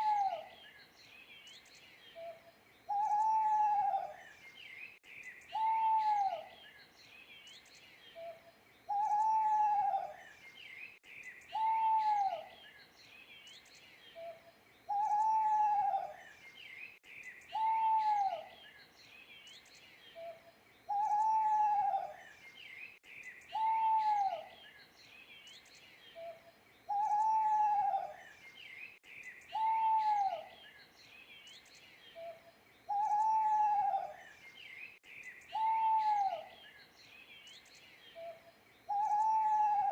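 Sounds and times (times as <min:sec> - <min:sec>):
owl hooting: 0:00.0 - 0:00.5, 0:02.2 - 0:04.2, 0:05.5 - 0:06.5, 0:08.2 - 0:10.2, 0:11.5 - 0:12.5, 0:14.2 - 0:16.2, 0:17.5 - 0:18.5, 0:20.2 - 0:22.2, 0:23.5 - 0:24.5, 0:26.2 - 0:28.2, 0:29.5 - 0:30.6, 0:32.2 - 0:34.2, 0:35.5 - 0:36.6, 0:38.2 - 0:39.9
small birds chirping faintly: 0:00.0 - 0:39.9.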